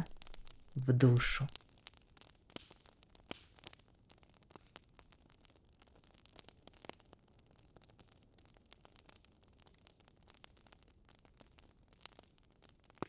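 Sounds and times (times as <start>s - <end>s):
quiet hiss: 0.0s - 1.6s
wood fire crackling: 0.0s - 1.6s.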